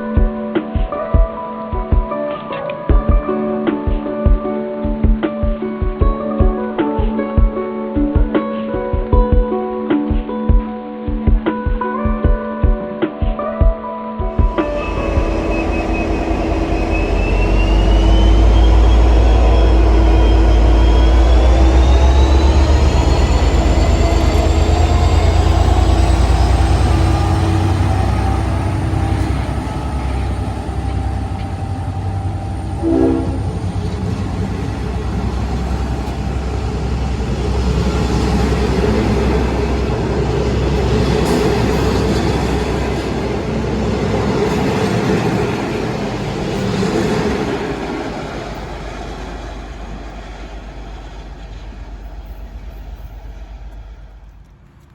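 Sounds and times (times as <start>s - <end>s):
diesel train rumbling: 14.4s - 54.9s
rail noise: 14.4s - 54.9s
train whines rising in pitch: 14.4s - 54.9s.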